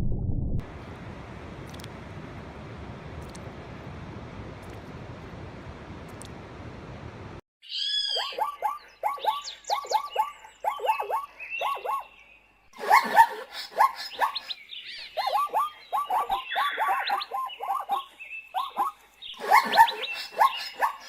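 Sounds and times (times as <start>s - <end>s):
steady rushing noise: 0.6s - 7.4s
repeated animal calls: 12.8s - 21.0s.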